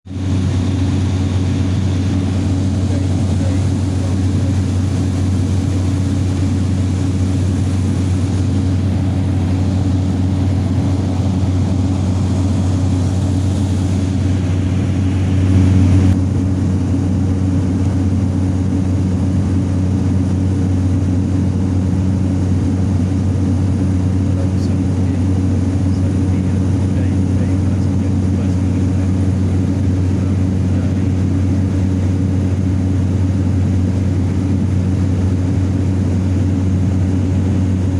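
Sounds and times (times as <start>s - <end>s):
propeller airplane engine drone: 0.0s - 37.9s.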